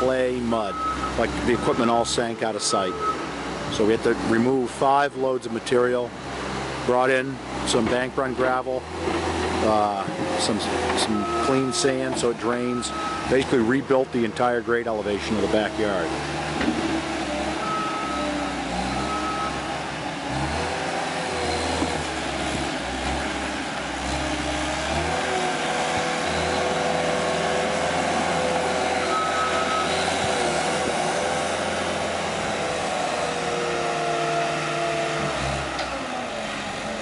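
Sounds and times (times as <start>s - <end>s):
diesel engine revving: 0.0s - 37.0s
backup alarm beeping: 0.7s - 3.2s.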